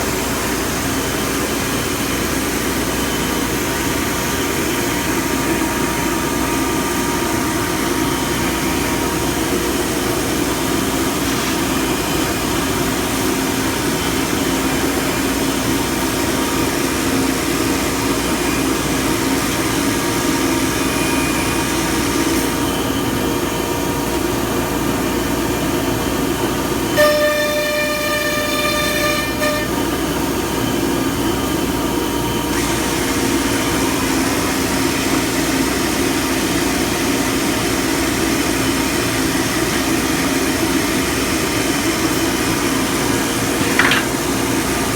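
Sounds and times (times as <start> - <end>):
router machine running: 0.0 - 44.9.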